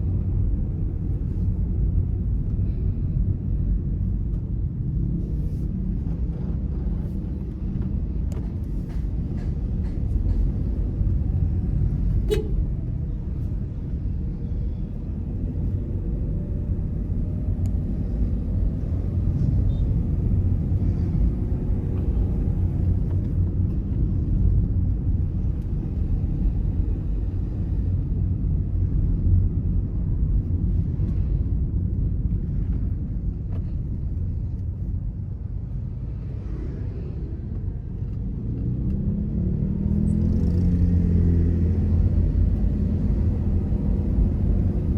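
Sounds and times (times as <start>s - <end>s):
car engine and tyre rumble: 0.0s - 44.9s.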